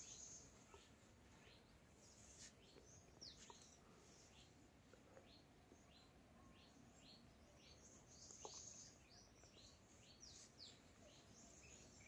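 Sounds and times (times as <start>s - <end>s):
high falling bird calls: 0.0s - 4.6s.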